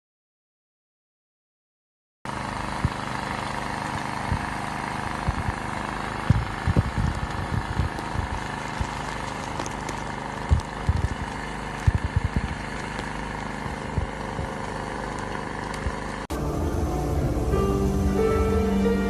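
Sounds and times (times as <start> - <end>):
steady motor hum: 2.3 - 19.0
soft low thumps: 2.8 - 3.0, 4.2 - 4.5, 5.2 - 9.0, 10.5 - 12.7, 13.6 - 14.7, 15.8 - 16.0.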